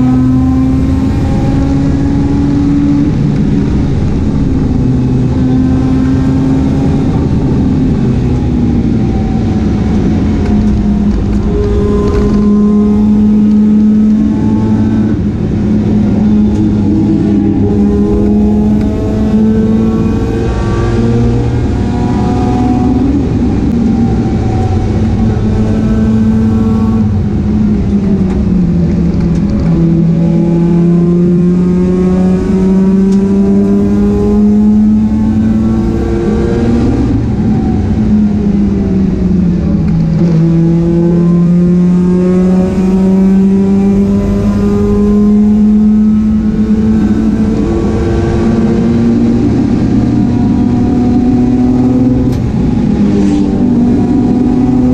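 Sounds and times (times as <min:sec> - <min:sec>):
rotary engine revving: 0:00.0 - 0:28.5.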